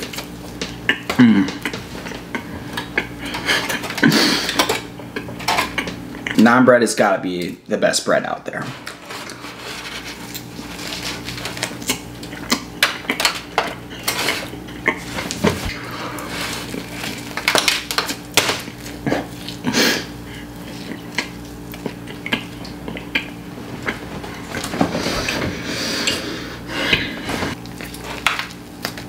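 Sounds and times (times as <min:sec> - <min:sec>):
person chewing bread: 0:00.0 - 0:06.4, 0:08.9 - 0:29.0
steady low hum: 0:00.0 - 0:29.0.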